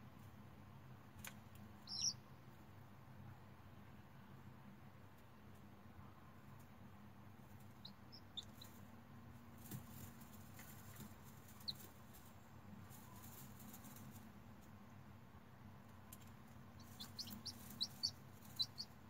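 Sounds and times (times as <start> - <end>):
low steady hum: 0.0 - 19.0
chick peeping: 1.8 - 2.3, 7.4 - 8.9, 9.6 - 14.2, 15.9 - 19.0.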